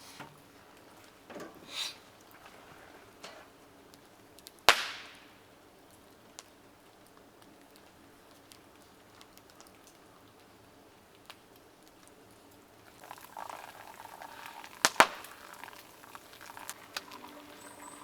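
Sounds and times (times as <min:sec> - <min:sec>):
food bubbling and sizzling: 0:12.3 - 0:18.0.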